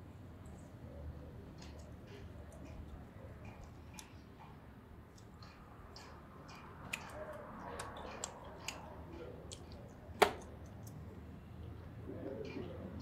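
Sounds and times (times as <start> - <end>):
wet chewing clicks and smacks: 1.6 - 11.2.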